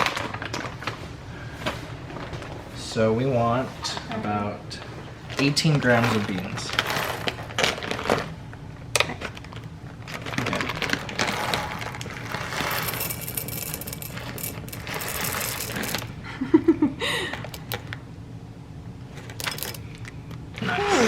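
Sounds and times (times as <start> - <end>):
coffee beans pouring: 5.4 - 8.2, 10.1 - 16.1.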